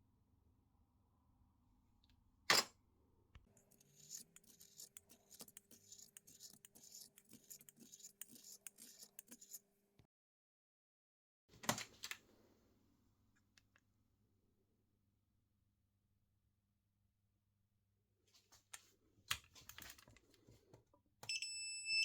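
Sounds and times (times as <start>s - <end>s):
hand scraping strokes: 3.5s - 9.6s.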